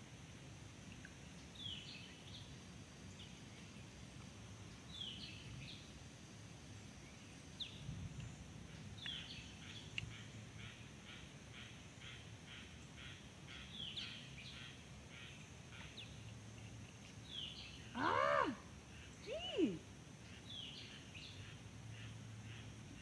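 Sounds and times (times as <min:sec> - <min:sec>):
small birds chirping: 0:07.0 - 0:10.8, 0:12.0 - 0:23.0
rising and falling bird calls: 0:17.5 - 0:18.6.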